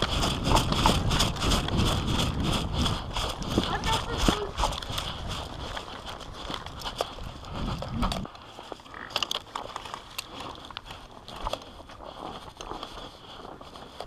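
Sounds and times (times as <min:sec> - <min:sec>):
low rumble on microphone: 0:00.0 - 0:08.3
footsteps crunching on snow: 0:00.0 - 0:14.0
gear clicking and rattling: 0:00.0 - 0:14.0.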